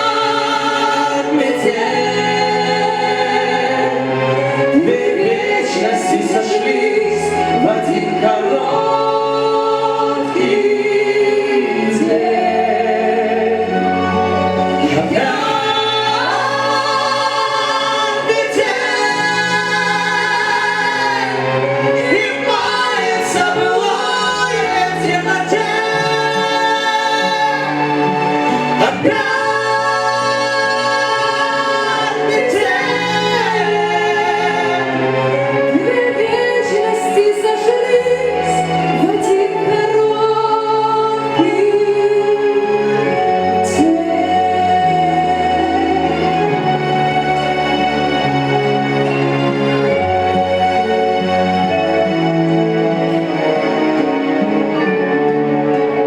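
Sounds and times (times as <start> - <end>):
singers holding sustained notes: 0.0 - 56.0.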